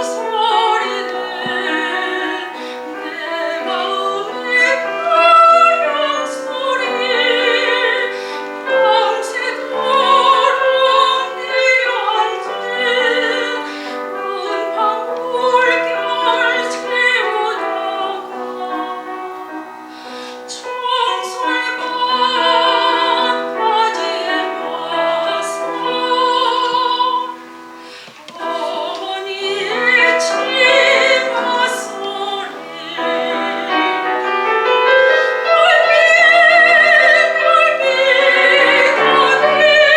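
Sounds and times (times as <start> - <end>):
piano accompaniment: 0.0 - 39.9
soprano singing with vibrato: 0.0 - 39.9.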